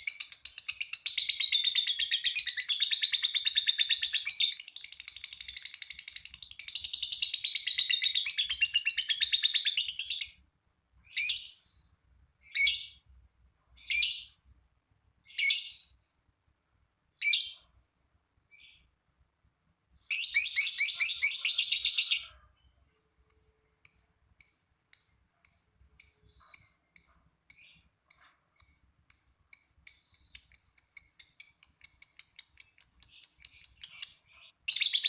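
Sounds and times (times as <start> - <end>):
shrill bird calls: 0.0 - 10.4, 11.0 - 13.0, 13.8 - 14.4, 15.2 - 16.0, 17.2 - 17.7, 20.0 - 35.0
lovebird chattering trill: 20.1 - 22.3, 23.3 - 35.0.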